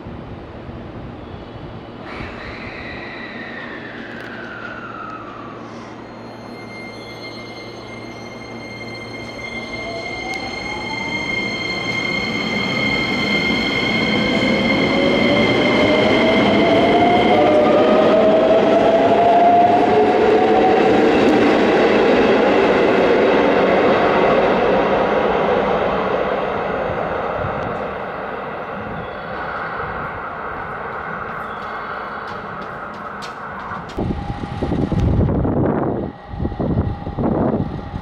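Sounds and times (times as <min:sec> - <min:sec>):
steady high tone: 0:02.9 - 0:24.6
wheel and rail noise: 0:26.6 - 0:36.3
electric train motor whine: 0:29.3 - 0:38.0.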